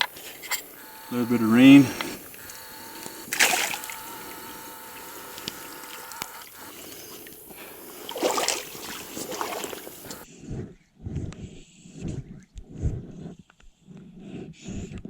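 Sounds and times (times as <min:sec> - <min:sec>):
water sloshing and splashing: 0:02.3 - 0:10.2.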